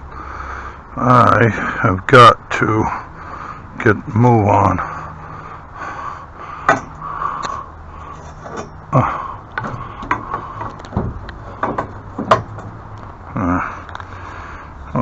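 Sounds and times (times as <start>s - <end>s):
objects knocking and clicking: 9.5s - 13.1s.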